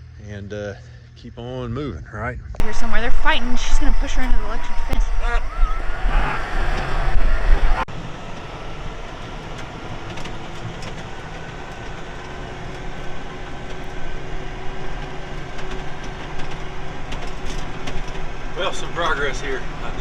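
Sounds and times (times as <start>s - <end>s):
wind buffeting microphone: 2.6s - 18.8s
tractor engine running: 2.6s - 20.0s.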